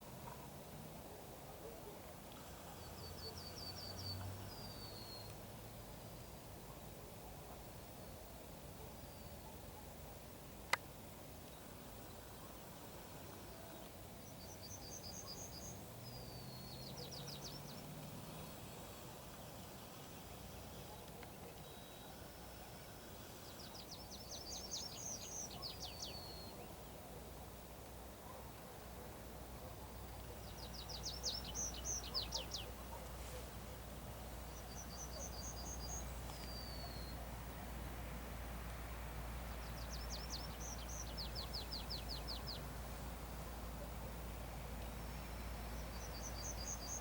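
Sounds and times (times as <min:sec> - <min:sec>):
background hiss: 0:00.0 - 0:47.0
songbird singing with trill: 0:02.7 - 0:05.4, 0:13.5 - 0:18.4, 0:20.4 - 0:22.4, 0:23.4 - 0:27.0, 0:30.3 - 0:33.0, 0:34.4 - 0:37.7, 0:39.5 - 0:42.8, 0:44.7 - 0:47.0.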